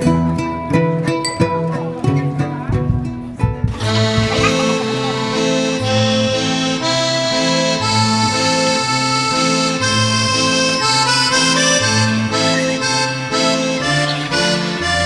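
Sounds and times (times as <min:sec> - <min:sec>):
accordion music: 0:03.7 - 0:15.0.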